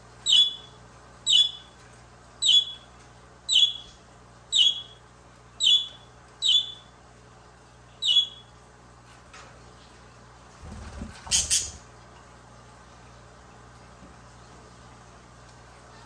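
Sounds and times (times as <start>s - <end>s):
budgerigar chirping: 0.2s - 0.7s, 1.3s - 1.7s, 2.4s - 2.8s, 3.5s - 3.9s, 4.5s - 5.0s, 5.6s - 6.8s, 8.0s - 8.5s.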